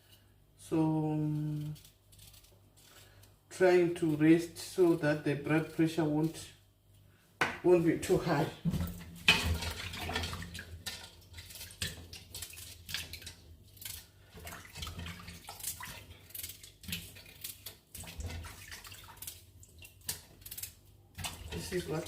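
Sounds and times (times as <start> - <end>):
water splashing in sink: 8.3 - 22.0.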